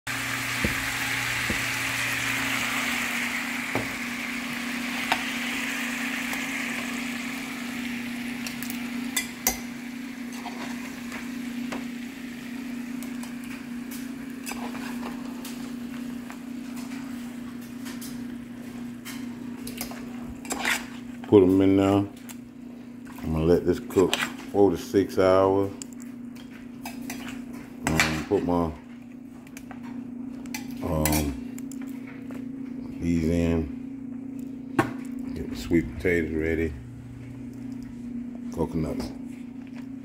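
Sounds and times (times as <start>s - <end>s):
meat sizzling in a saucepan: 0.1s - 15.0s
low hum: 32.5s - 40.0s.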